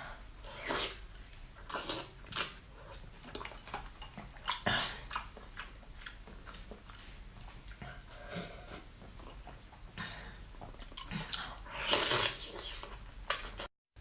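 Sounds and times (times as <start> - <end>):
person chewing food: 0.6 - 13.7.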